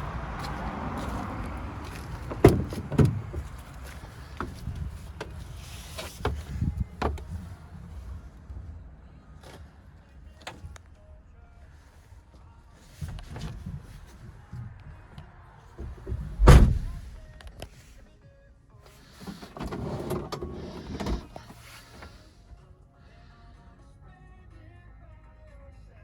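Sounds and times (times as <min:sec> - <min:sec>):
low steady rumble: 0:00.0 - 0:17.4
truck door thuds: 0:02.2 - 0:05.4, 0:06.1 - 0:07.5, 0:15.8 - 0:17.4
clicks and knocks in truck cab: 0:02.2 - 0:07.6, 0:15.8 - 0:17.7.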